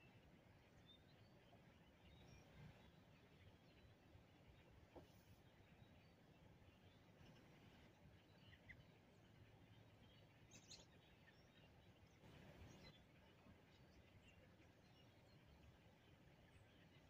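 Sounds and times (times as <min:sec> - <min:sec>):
faint bird chirps: 0:00.0 - 0:17.0.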